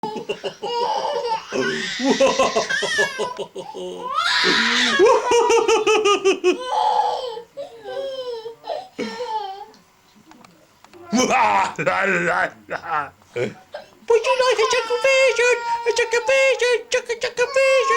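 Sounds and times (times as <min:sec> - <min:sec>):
young child laughing: 0:00.0 - 0:06.8.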